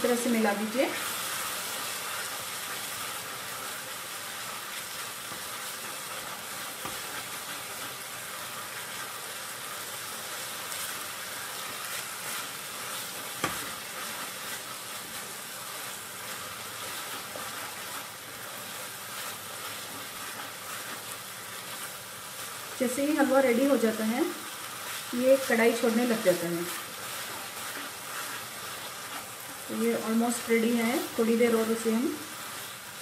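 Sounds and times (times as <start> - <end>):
halwa sizzling in ghee: 0.0 - 33.0
wooden spatula scraping pan: 24.9 - 30.4.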